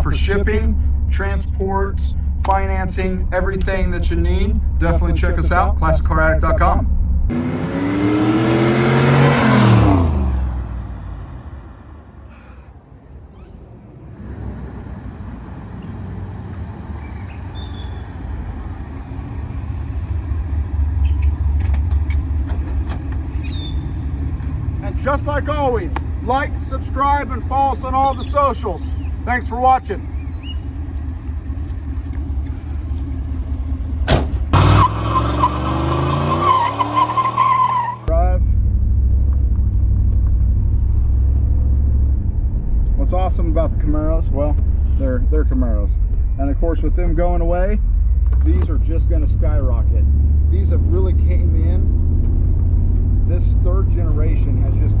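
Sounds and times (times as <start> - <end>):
car engine accelerating past: 7.3 - 12.1, 13.9 - 29.3, 30.0 - 43.0.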